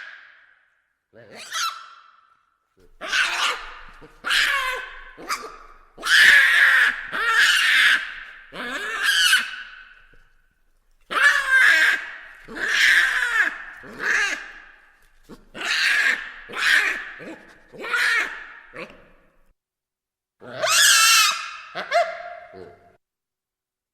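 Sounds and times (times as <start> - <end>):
baboons calling: 1.3 - 2.1, 2.9 - 10.2, 11.1 - 19.2, 20.4 - 22.8.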